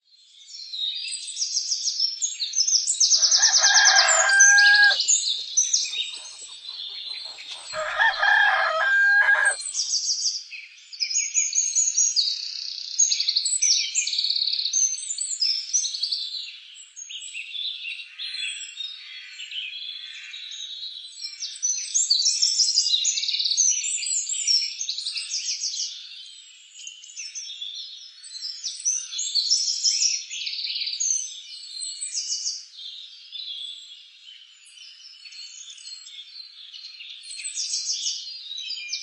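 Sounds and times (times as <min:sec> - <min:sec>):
small birds chirping: 0:00.0 - 0:10.5
rooster crowing: 0:03.2 - 0:05.2, 0:06.2 - 0:09.6.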